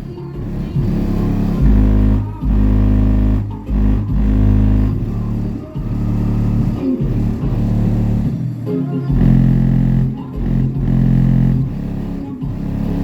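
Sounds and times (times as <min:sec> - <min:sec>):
bass-heavy music through subwoofers: 0:00.0 - 0:13.0.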